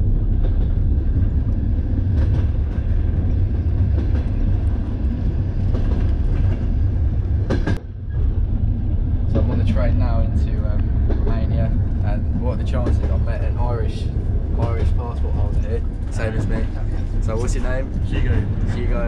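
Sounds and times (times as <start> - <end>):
train carriage rumbling on track: 0.0 - 19.0
rattles and knocks: 0.4 - 8.4, 10.7 - 19.0.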